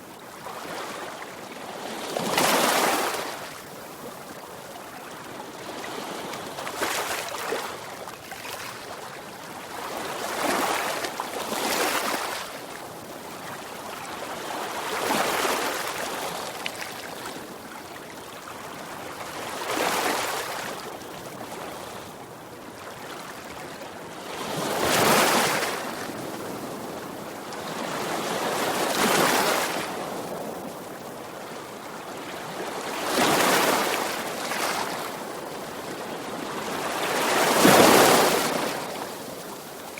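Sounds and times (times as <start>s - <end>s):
sea waves breaking on shore: 32.2s - 39.9s.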